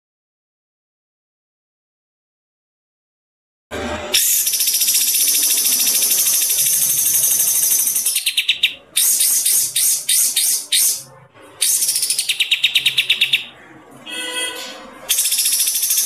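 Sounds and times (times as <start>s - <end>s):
songbirds trilling and chirping: 4.4s - 13.6s.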